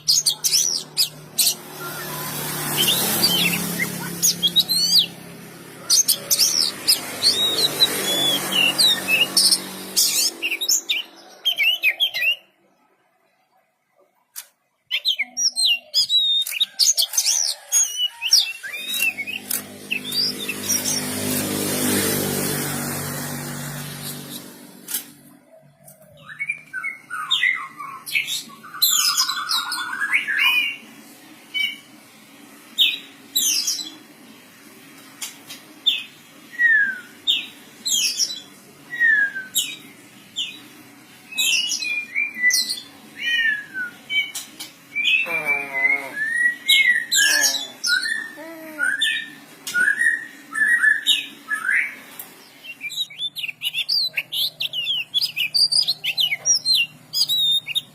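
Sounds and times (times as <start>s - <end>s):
bird singing whistled notes: 6.9s - 12.5s, 52.7s - 57.9s.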